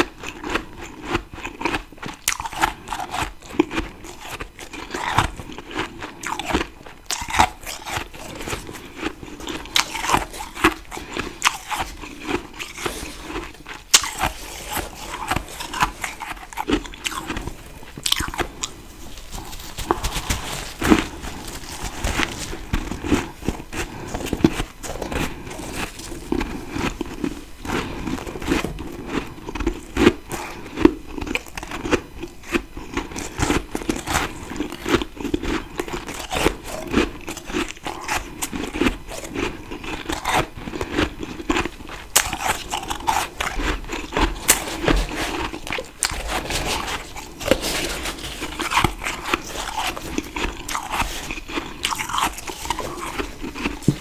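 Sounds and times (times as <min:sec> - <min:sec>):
chewing crunchy frost: 0:00.0 - 0:54.0.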